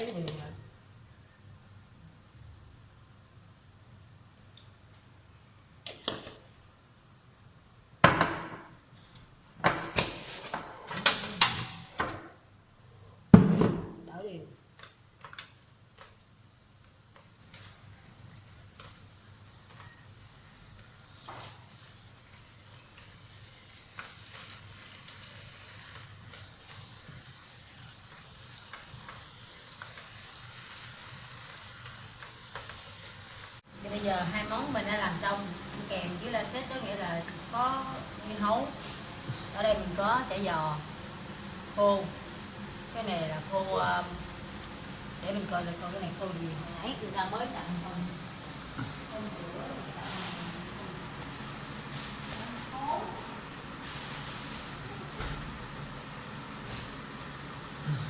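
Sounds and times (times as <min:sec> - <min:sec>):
meat and greens sizzling in pan: 0:14.9 - 0:57.8.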